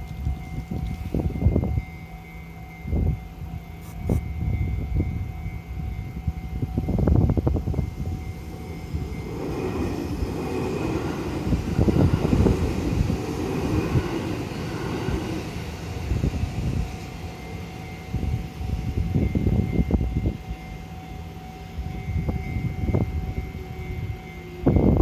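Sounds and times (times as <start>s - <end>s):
train rushing past: 0.0s - 25.0s
low rumble: 4.4s - 17.4s.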